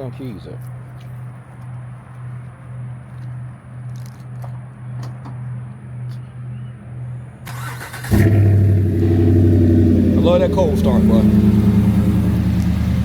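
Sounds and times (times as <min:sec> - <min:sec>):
truck engine running: 0:07.6 - 0:13.0
low pulsing hum: 0:08.6 - 0:13.0.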